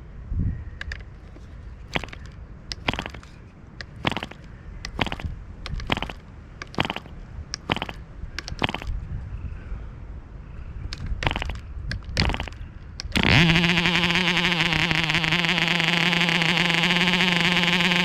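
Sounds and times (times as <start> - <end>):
model engine rumbling: 1.2 - 8.9, 12.2 - 18.0
sharp crackling bursts: 1.9 - 3.3, 3.9 - 8.9, 11.2 - 11.6, 12.2 - 18.0.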